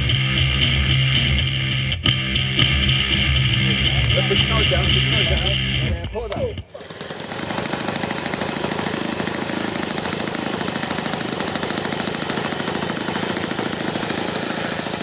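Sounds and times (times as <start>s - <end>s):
model plane engine buzzing: 3.6s - 15.0s.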